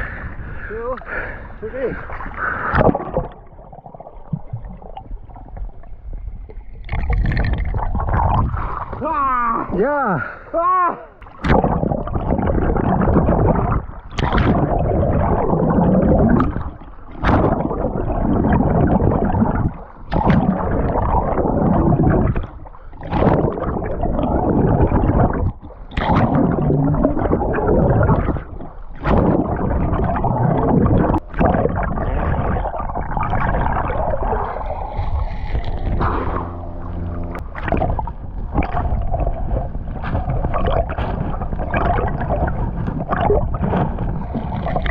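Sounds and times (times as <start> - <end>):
water churning and gurgling: 0.0 - 44.9.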